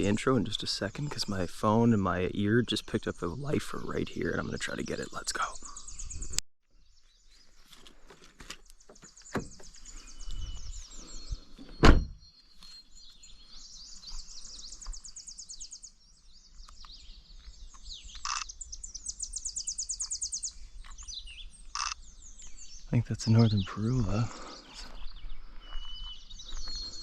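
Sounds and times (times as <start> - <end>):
songbirds trilling and chirping: 0.0 - 27.0
heavy thump: 11.8 - 12.2.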